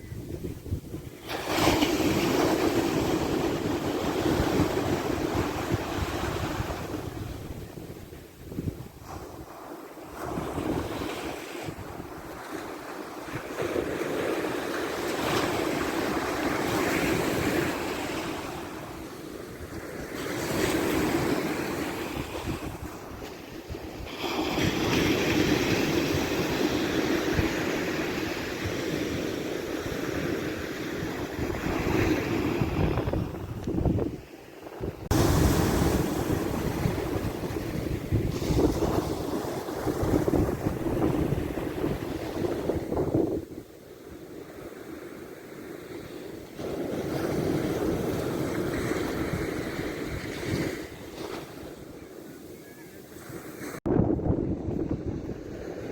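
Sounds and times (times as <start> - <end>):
wind buffeting microphone: 0.0 - 43.8, 53.2 - 55.9
surf breaking on beach: 1.2 - 34.2, 34.8 - 43.5.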